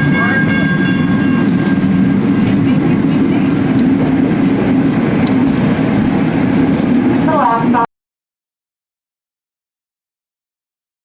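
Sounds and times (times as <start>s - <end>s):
wheels clicking over rails: 0.0s - 7.5s
streetcar rumbling along track: 0.0s - 7.9s.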